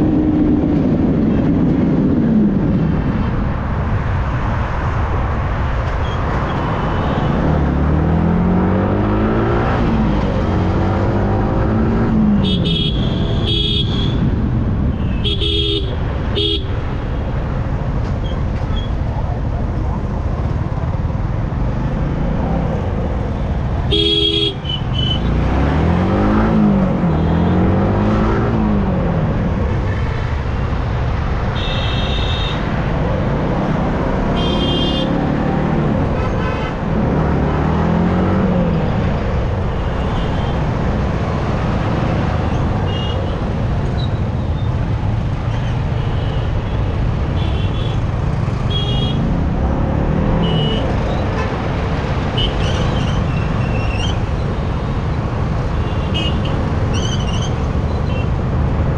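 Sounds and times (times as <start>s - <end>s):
wind and road noise: 0.0s - 58.9s
vehicle horns honking: 12.4s - 14.2s, 23.8s - 25.4s, 31.6s - 32.6s, 34.3s - 35.2s, 48.6s - 49.3s, 55.8s - 56.6s.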